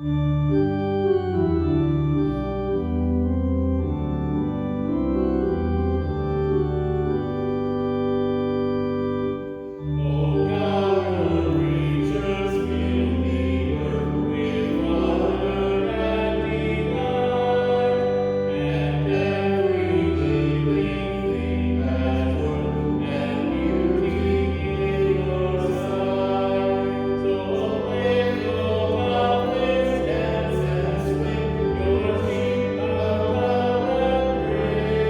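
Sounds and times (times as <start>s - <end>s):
church organ chords: 0.0s - 35.0s
people singing: 10.0s - 35.0s.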